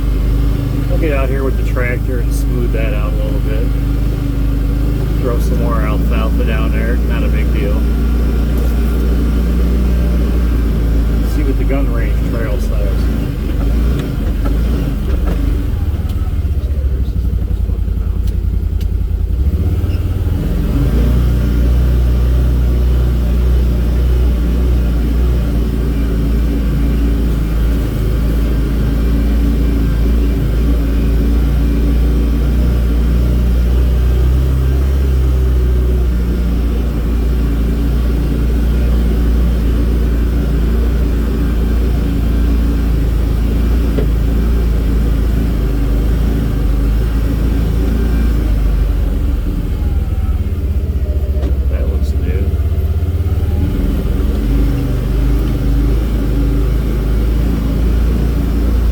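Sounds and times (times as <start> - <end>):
vehicle engine droning: 0.0 - 58.9.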